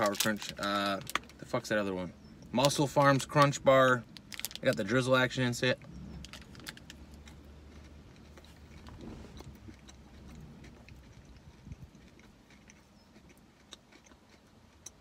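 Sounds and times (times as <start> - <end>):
person chewing crunchy bar: 5.8 - 15.0.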